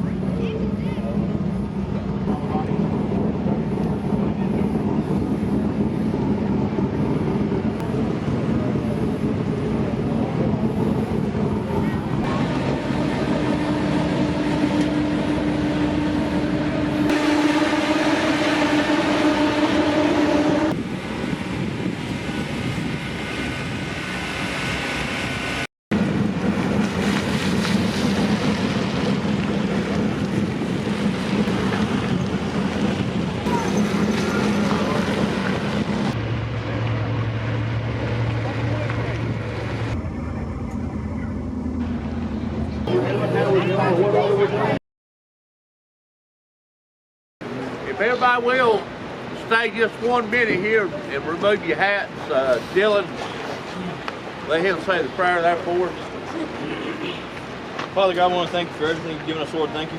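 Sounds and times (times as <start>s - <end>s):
wind-like rushing noise: 0.0s - 40.4s
race car engines rumbling: 0.0s - 44.8s
motor hum: 12.2s - 20.9s.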